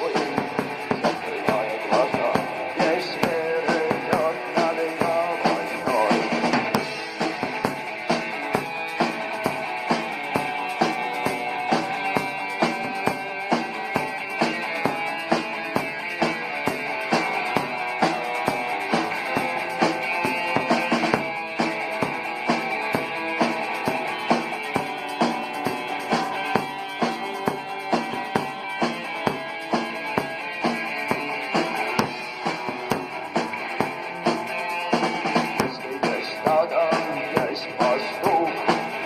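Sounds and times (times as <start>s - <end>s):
drum kit steady beat: 0.0s - 39.0s
guitar: 0.0s - 39.0s
rock band playing: 0.0s - 39.0s.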